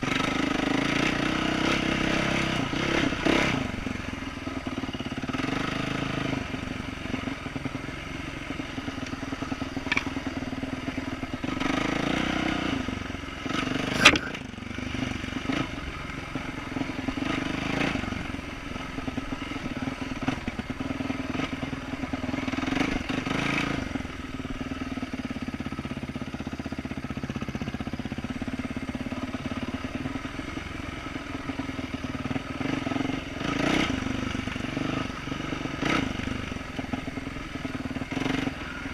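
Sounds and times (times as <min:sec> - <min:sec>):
dirt bike engine revving: 0:00.0 - 0:38.9
bike rattling: 0:07.0 - 0:12.3, 0:13.7 - 0:14.5.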